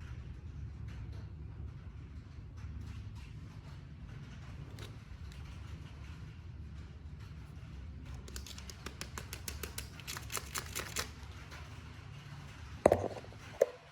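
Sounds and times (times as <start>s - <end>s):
plastic packaging crackling: 8.2s - 11.3s.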